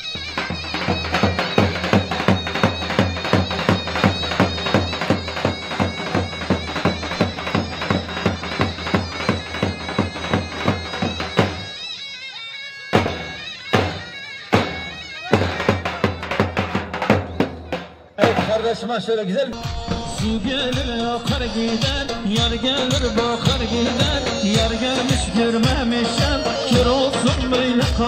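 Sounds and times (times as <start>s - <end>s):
reedy bagpipe-like melody: 0.0s - 17.7s, 19.5s - 28.0s
fast drum beat: 0.5s - 11.6s, 19.5s - 28.0s.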